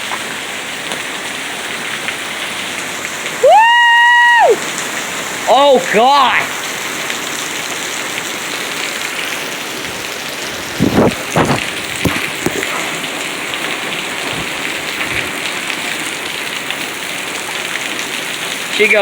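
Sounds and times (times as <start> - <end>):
heavy rain pouring: 0.0 - 19.0
loud thuds: 10.8 - 12.8.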